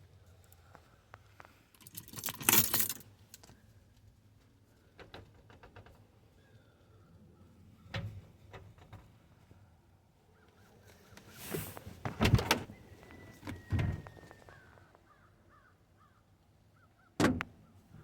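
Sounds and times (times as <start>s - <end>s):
door swish and loud clunks: 11.5s - 12.8s.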